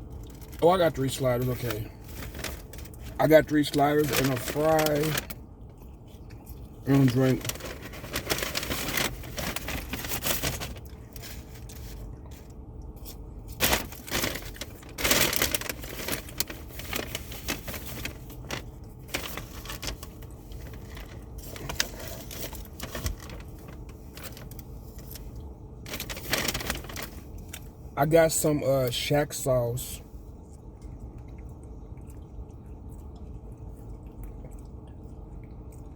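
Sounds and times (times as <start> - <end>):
paper wrappers rustling: 0.2 - 5.4, 6.6 - 27.6.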